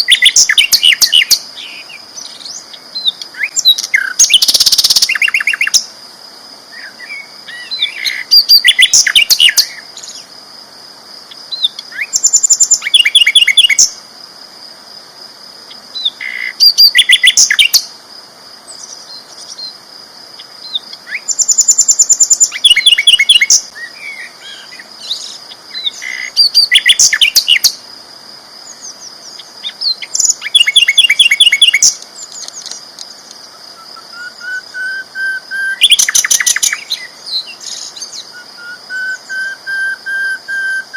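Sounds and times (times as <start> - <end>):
bird trilling song: 0.0 - 5.9, 6.8 - 10.2, 11.5 - 14.0, 16.0 - 17.9, 20.6 - 27.8, 28.7 - 32.8, 33.7 - 40.9
quiet bird chirps: 0.0 - 5.9, 11.3 - 14.0, 15.6 - 17.9, 18.6 - 19.8, 20.4 - 27.8, 28.6 - 40.9.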